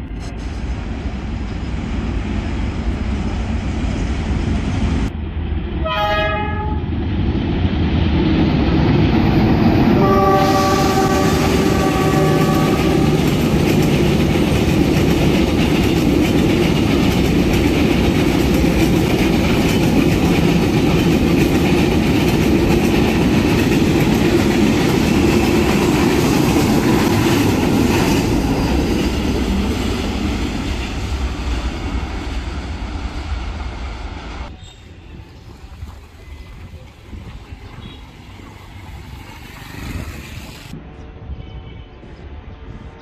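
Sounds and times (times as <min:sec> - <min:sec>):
train wheels rolling on rails: 0:06.9 - 0:40.8.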